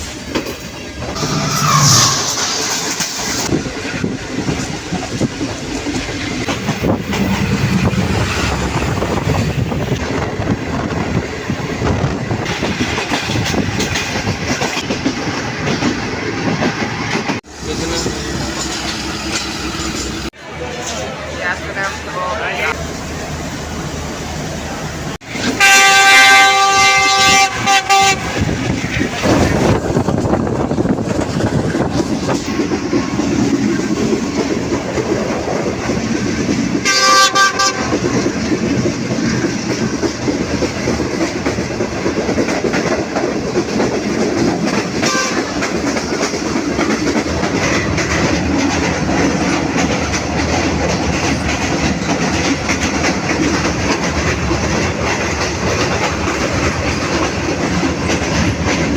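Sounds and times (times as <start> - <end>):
passenger train running on rails: 0.0 - 58.9
train horn blast: 25.4 - 28.5, 36.8 - 38.0, 45.0 - 45.6.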